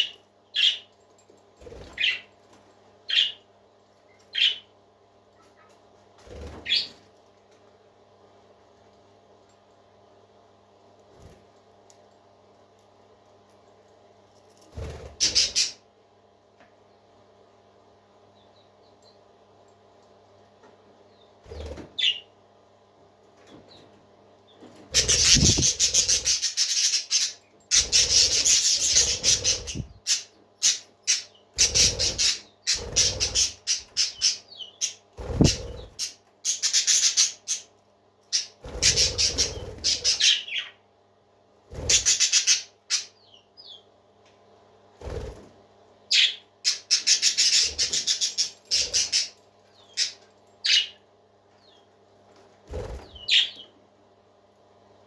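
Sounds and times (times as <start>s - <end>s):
parakeets chattering: 0.0s - 0.9s, 3.1s - 3.4s, 4.3s - 4.7s, 6.5s - 7.0s, 15.1s - 15.8s, 24.8s - 40.8s, 41.7s - 43.8s, 46.1s - 51.0s, 52.7s - 53.7s.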